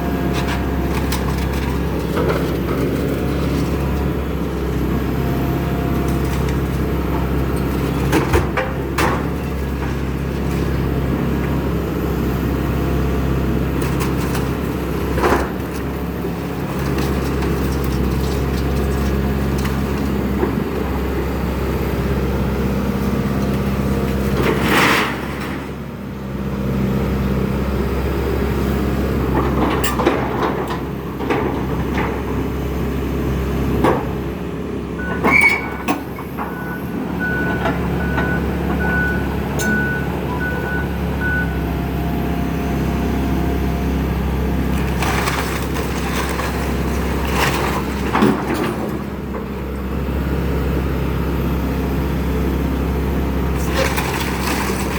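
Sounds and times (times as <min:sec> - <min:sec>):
excavator diesel engine: 0:00.0 - 0:54.9
demolition knocks and cracks: 0:44.7 - 0:49.4, 0:53.6 - 0:54.9.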